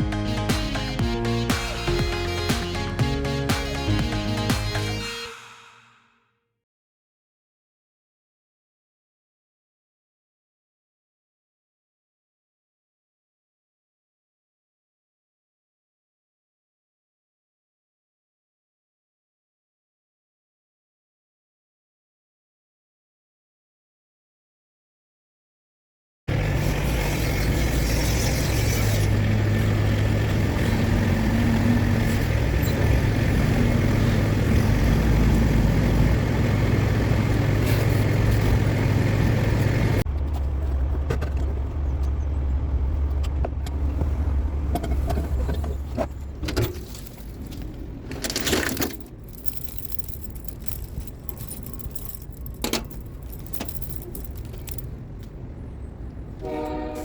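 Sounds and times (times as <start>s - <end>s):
heavy engine running: 0.0s - 5.1s, 26.3s - 47.2s
knocks and clinks: 46.4s - 54.9s
metallic rattling and clinking: 46.5s - 54.9s.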